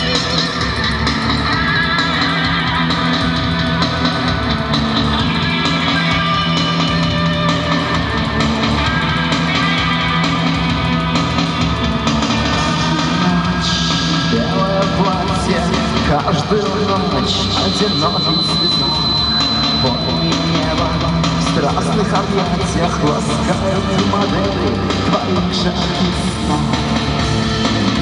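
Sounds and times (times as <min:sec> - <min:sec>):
bass guitar: 0:00.0 - 0:28.0
drum kit: 0:00.0 - 0:28.0
electric guitar: 0:00.0 - 0:28.0.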